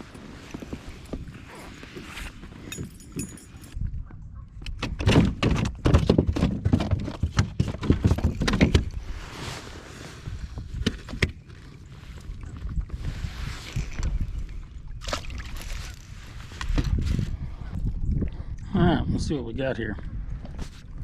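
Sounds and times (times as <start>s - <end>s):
gear knocking in plastic kayak: 4.7s - 9.0s.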